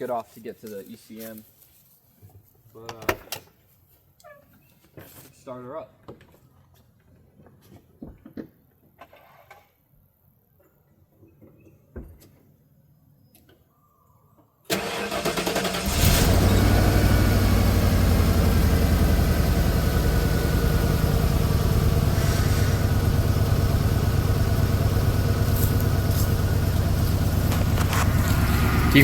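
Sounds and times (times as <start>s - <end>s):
starter cranking engine: 14.7s - 29.0s
pickup engine idling rough: 15.4s - 29.0s.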